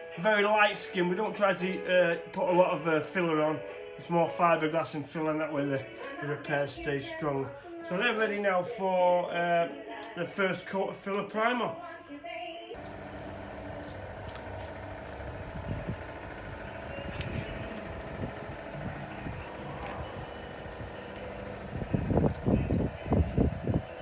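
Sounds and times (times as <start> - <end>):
faint hum: 12.8 - 24.0
low background rumble: 12.8 - 24.0.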